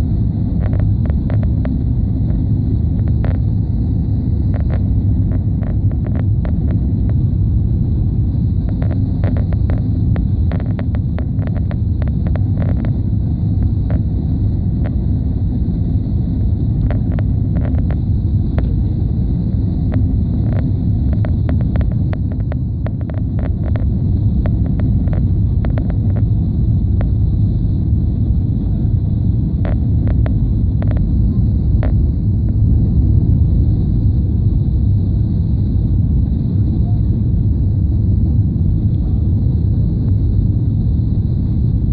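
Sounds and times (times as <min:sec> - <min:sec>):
airliner engine rumble in cabin: 0:00.0 - 0:41.9.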